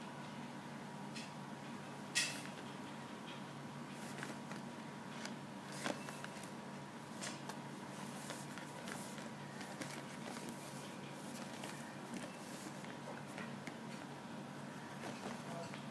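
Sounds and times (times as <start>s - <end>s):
steady low hum: 0.0s - 15.9s
packaging clicks and rustles: 4.0s - 6.6s, 7.2s - 14.1s, 14.9s - 15.9s.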